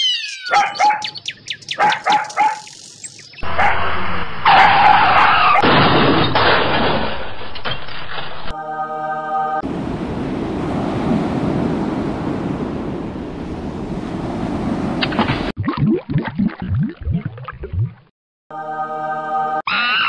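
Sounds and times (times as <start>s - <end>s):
cartoon barks and chirps: 0.0s - 2.8s.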